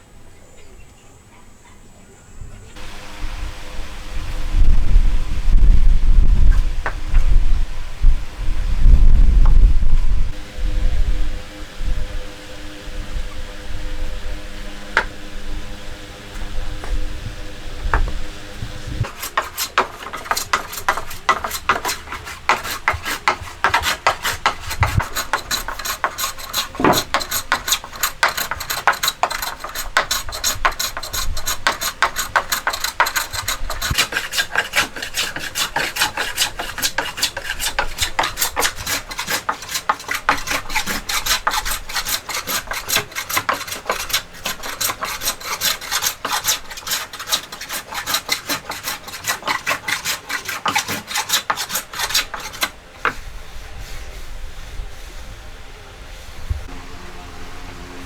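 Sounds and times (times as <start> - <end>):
hand tool scraping wood: 19.0 - 54.4.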